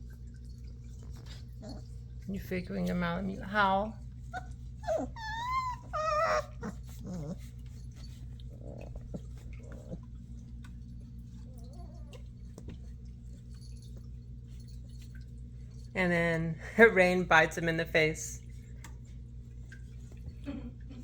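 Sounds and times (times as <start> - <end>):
puppy whimpers and grunts: 1.4 - 2.0, 4.2 - 10.2, 11.3 - 12.4
puppy howling: 4.3 - 7.5, 11.3 - 12.3.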